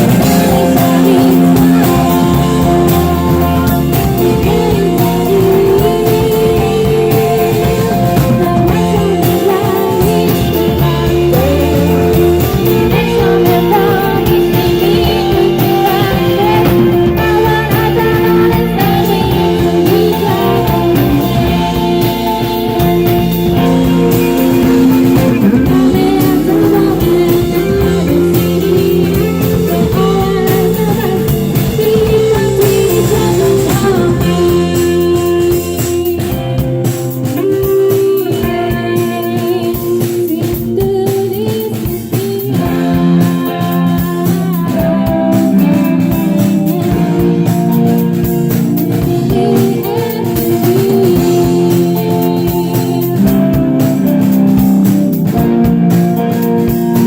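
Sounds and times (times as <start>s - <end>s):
guitars: 0.0s - 57.0s
person singing: 0.0s - 57.0s
rock band playing: 0.0s - 57.0s.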